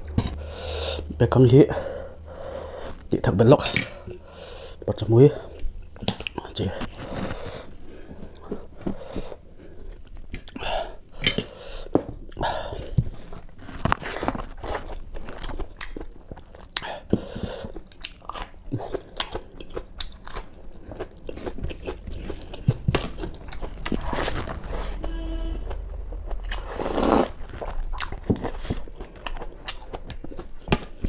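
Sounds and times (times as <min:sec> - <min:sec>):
chewing and crunching food: 0:05.4 - 0:10.6, 0:12.2 - 0:24.9, 0:25.7 - 0:31.0.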